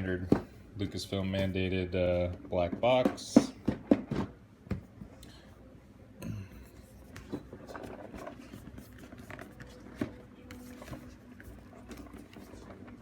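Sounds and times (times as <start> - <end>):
packaging scraping and rustling: 6.8 - 13.0.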